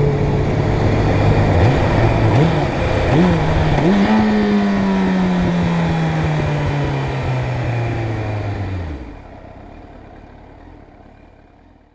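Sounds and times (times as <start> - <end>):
motorcycle engine slowing down: 0.0 - 11.9.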